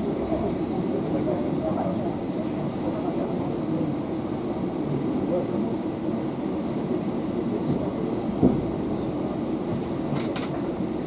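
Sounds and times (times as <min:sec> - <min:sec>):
train wheels rumbling on rails: 0:00.0 - 0:11.0
train wheel knock: 0:08.4 - 0:08.8.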